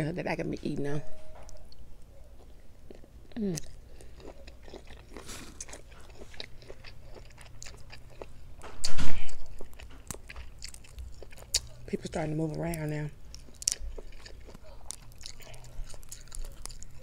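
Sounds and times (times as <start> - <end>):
chewing and wet mouth clicks: 2.9 - 8.3, 9.5 - 11.9, 12.6 - 17.0.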